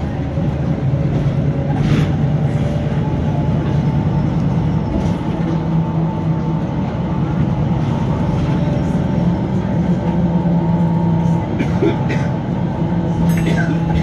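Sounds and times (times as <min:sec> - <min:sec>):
bus engine droning: 0:00.0 - 0:14.0.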